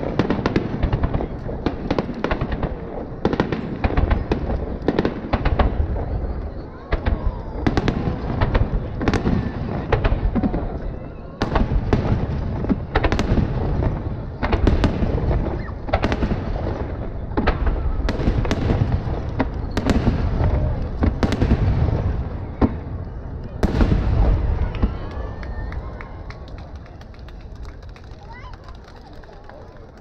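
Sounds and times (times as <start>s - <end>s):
firework bangs: 0.0s - 30.0s.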